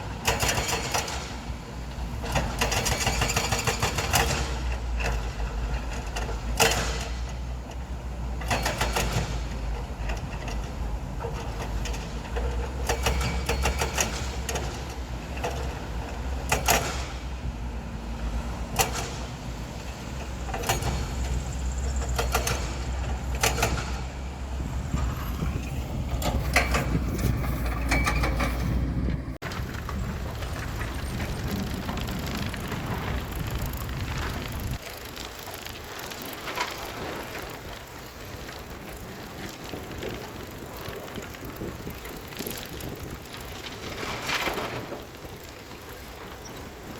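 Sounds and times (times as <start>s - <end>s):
heavy machinery engine rumble: 0.0s - 46.9s
machinery knocks and clanks: 18.7s - 34.8s.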